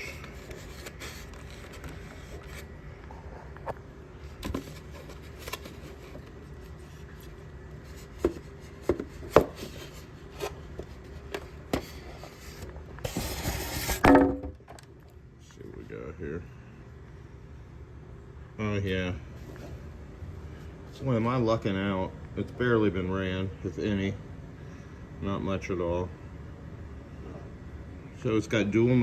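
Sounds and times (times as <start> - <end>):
packaging rustling: 0.0 - 2.8, 3.5 - 14.0
rubbing and scraping packaging: 0.0 - 14.1.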